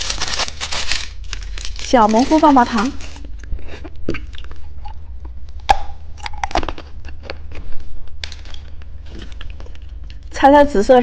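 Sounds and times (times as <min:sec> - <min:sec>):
plastic candy wrapper crackling: 0:00.0 - 0:03.5, 0:08.1 - 0:10.3.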